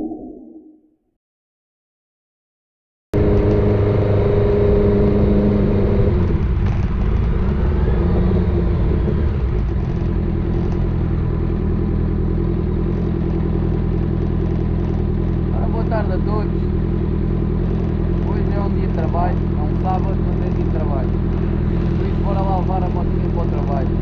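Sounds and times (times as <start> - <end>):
motorcycle engine idling: 6.3 - 24.0.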